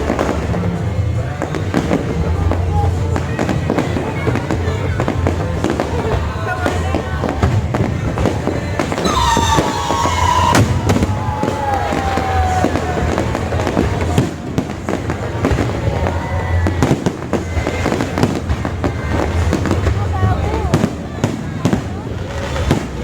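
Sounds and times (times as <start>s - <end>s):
fireworks bangs and crackles: 0.0s - 23.0s
music playing: 8.2s - 13.8s
tone sliding down in pitch: 9.0s - 11.4s.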